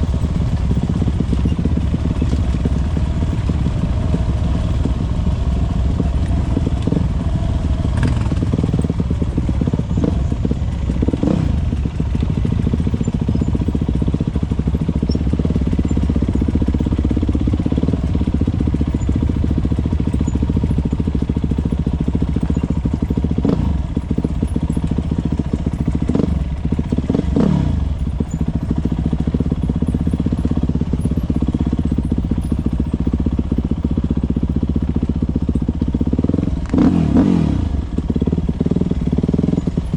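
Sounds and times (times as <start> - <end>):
motocross bikes racing: 0.0 - 11.8.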